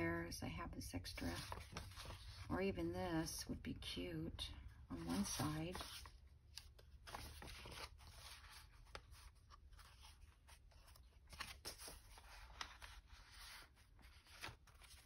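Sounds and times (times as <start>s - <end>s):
paper and card rustling: 1.1s - 2.8s, 4.9s - 15.0s.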